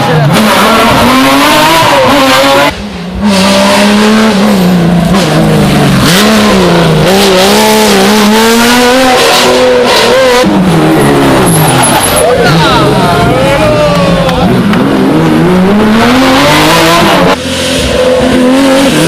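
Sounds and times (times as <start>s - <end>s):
rally car engine at hard throttle: 0.0s - 19.0s.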